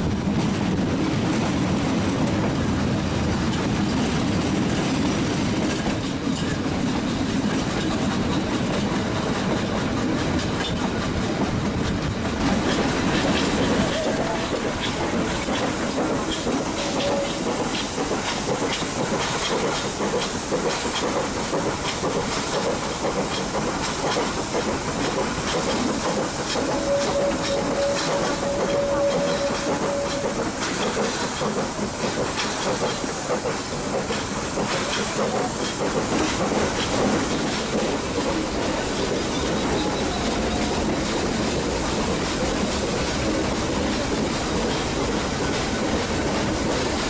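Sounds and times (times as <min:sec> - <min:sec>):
wheels clattering on rails: 0:00.0 - 0:47.0
steady high tone: 0:26.6 - 0:30.4.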